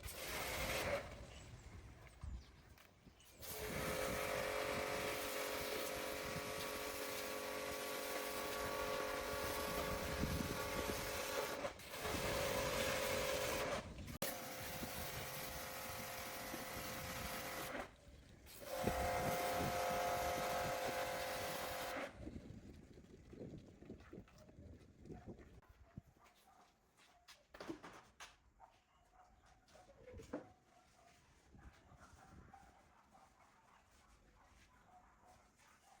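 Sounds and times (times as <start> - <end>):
workshop tool motor whining: 0.0 - 1.4, 3.4 - 22.2.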